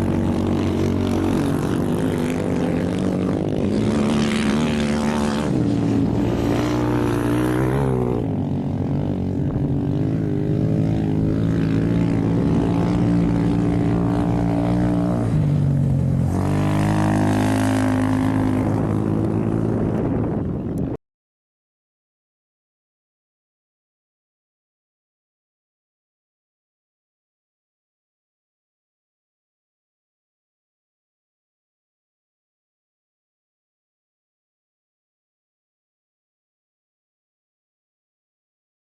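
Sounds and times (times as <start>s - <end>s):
engine running loudly: 0.0s - 21.0s.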